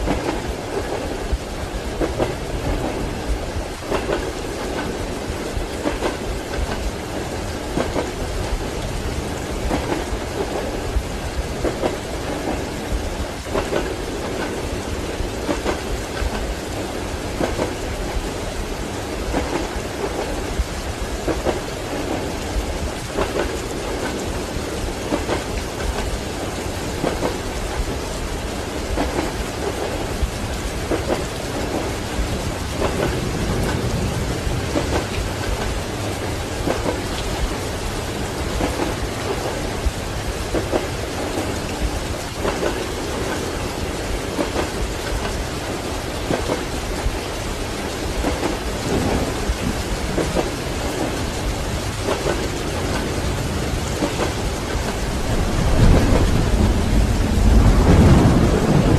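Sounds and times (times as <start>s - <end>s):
train wheels clacking on rail joints: 0.0s - 57.3s
heavy rain: 0.0s - 58.9s
thunder rumbling: 0.0s - 58.9s.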